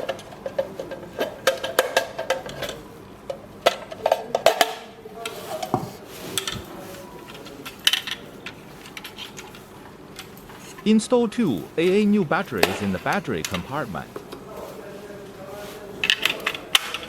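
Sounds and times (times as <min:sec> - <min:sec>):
plastic parts clicking and knocking: 0:00.0 - 0:04.8, 0:16.0 - 0:17.0.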